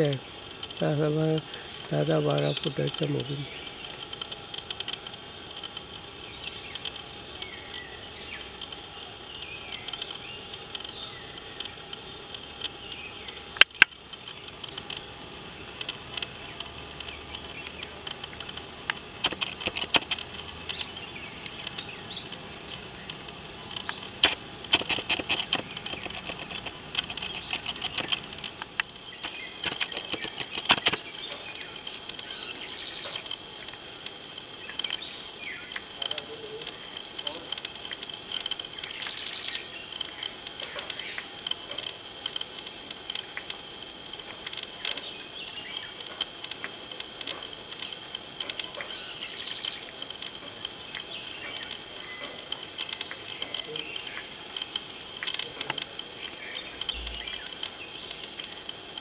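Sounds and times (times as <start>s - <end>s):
bird rising chirp: 0.0s - 13.6s, 14.2s - 24.2s, 24.8s - 33.3s
high insect drone: 0.0s - 59.0s
sharp clicks: 0.0s - 59.0s
quick ticking: 8.3s - 59.0s.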